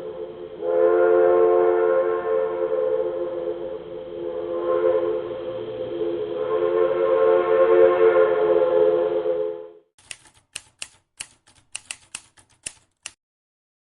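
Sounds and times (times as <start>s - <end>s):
locomotive air horn: 0.0s - 9.9s
typewriter key clacks: 10.0s - 13.2s.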